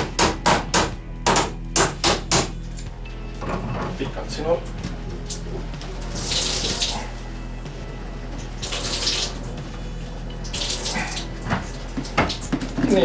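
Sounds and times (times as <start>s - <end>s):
water gushing into container: 3.6s - 13.0s.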